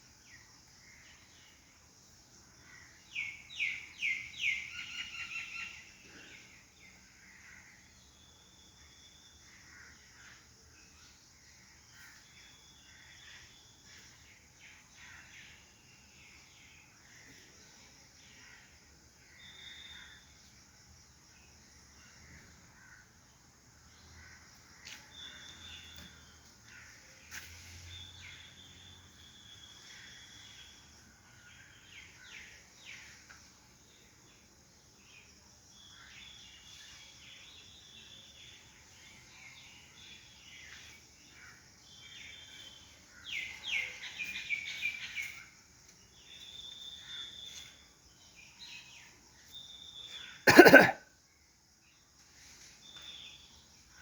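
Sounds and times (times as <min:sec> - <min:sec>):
birds calling: 0:50.1 - 0:50.9.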